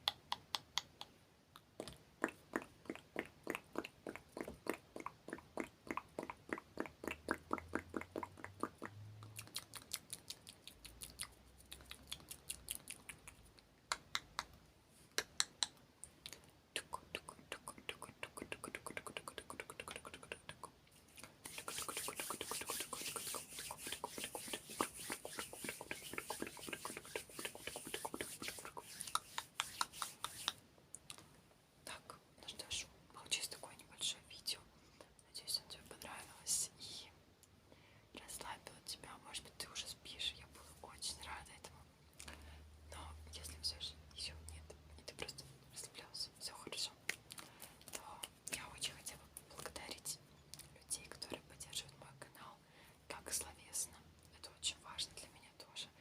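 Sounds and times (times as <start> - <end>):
wet mouth clicks and smacks: 0.0 - 31.3, 47.0 - 48.7
hands rubbing: 17.8 - 30.6.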